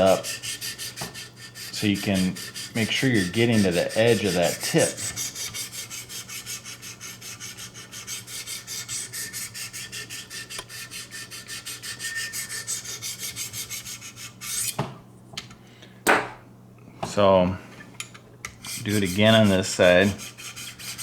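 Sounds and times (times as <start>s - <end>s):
sharpening stone scraping knife: 0.0s - 14.8s.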